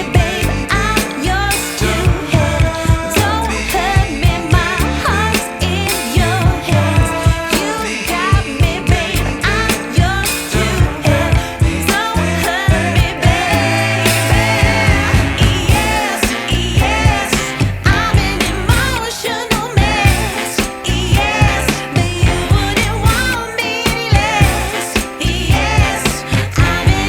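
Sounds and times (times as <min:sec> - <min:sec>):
pop music with female vocals: 0:00.0 - 0:27.0.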